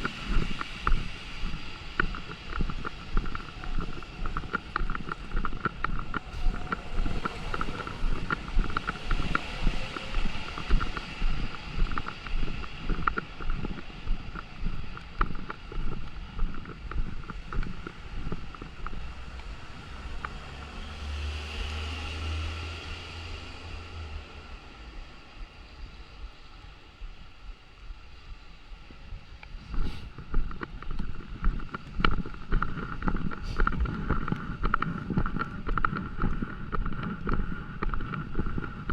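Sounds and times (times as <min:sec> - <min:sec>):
footsteps walking: 0:00.0 - 0:20.7, 0:28.8 - 0:38.9
low engine rumble: 0:00.0 - 0:38.9.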